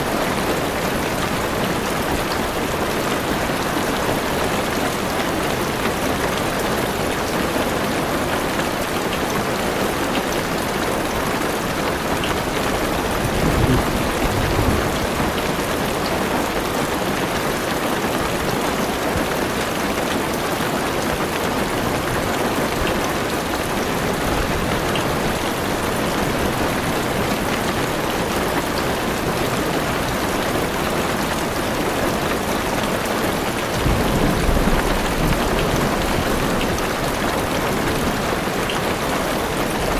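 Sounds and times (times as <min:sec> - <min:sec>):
heavy rain on car roof: 0:00.0 - 0:39.9
thunder rumbling: 0:12.6 - 0:15.9, 0:33.8 - 0:38.4.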